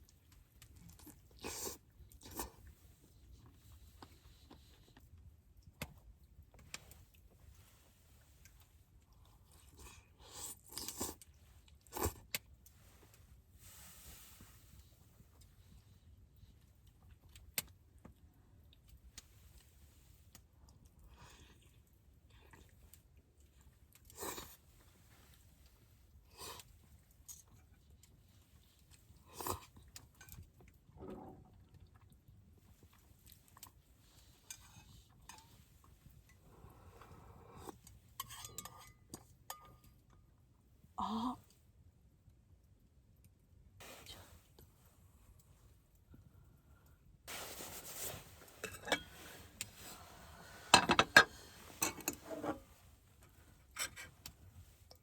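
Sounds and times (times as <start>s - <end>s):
chewing and mouth noises: 0.0s - 7.2s
short hiss: 47.3s - 48.4s
tableware and glass clinking: 48.6s - 49.4s, 50.7s - 52.6s.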